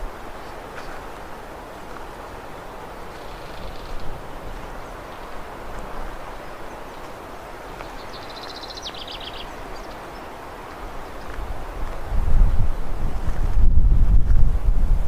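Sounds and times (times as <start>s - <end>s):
songbird trill: 2.6s - 11.4s.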